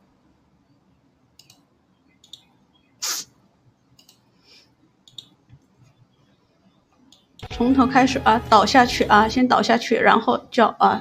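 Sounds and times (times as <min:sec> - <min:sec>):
computer mouse clicks: 0:01.4 - 0:02.5, 0:03.9 - 0:04.3, 0:05.0 - 0:06.0, 0:06.9 - 0:07.4
short breathy puff: 0:03.0 - 0:03.4.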